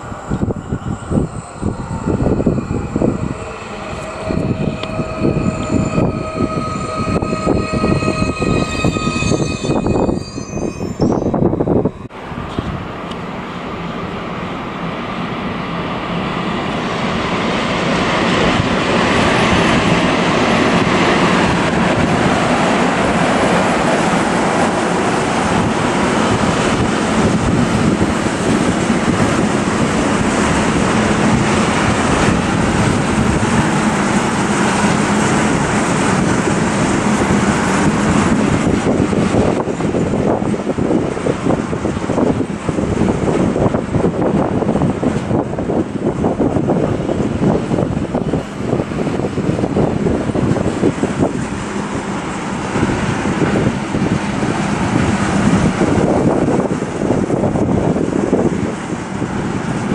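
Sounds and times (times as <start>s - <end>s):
electric train motors whining: 0.0s - 12.0s
freight train rolling by: 0.0s - 59.9s.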